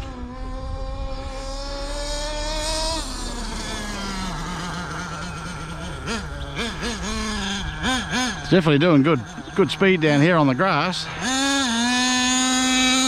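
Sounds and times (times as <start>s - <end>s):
small nitro engine revving: 0.0s - 13.0s.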